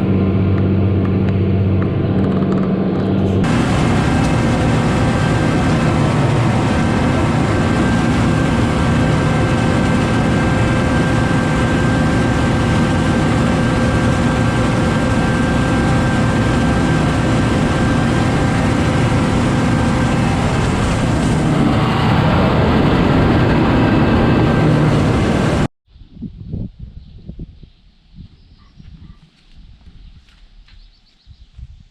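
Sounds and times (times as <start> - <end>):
tractor engine running: 0.0 - 25.7
steady tones: 3.3 - 25.7.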